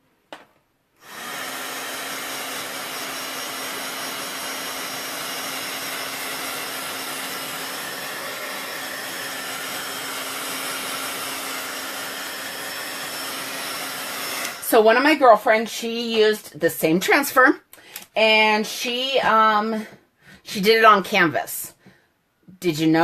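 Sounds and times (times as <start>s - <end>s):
heat tool blowing air: 1.0s - 14.8s.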